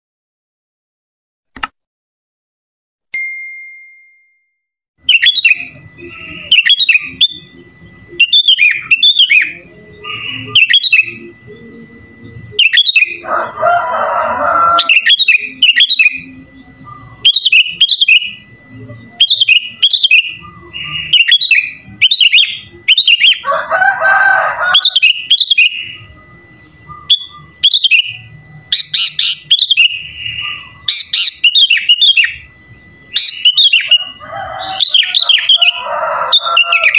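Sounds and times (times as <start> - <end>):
bulbul whistled song: 5.0 - 13.2, 14.8 - 23.4, 24.8 - 36.9
thin steady high tone: 5.2 - 23.4, 24.2 - 36.9
harsh bird chattering: 24.7 - 32.4, 33.0 - 36.9.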